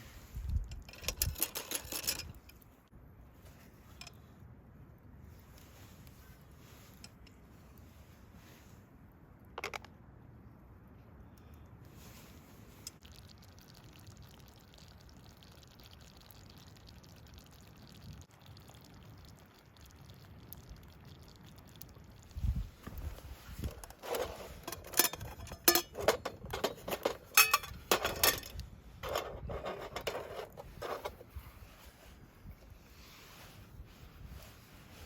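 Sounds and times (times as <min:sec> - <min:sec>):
faint steady hiss: 0:00.0 - 0:35.0.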